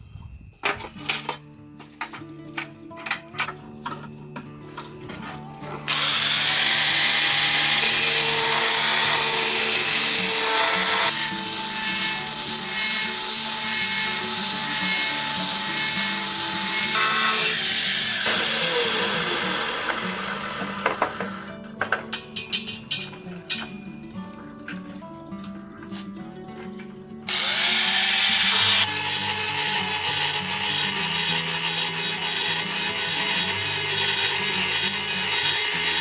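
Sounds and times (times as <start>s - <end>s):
electric power tool running: 5.9s - 21.5s, 27.3s - 36.0s.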